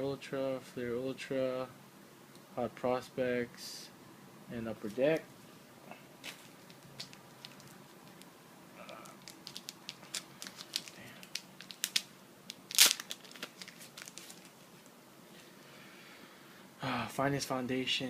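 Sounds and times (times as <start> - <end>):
plastic packaging crinkling: 6.2 - 14.9.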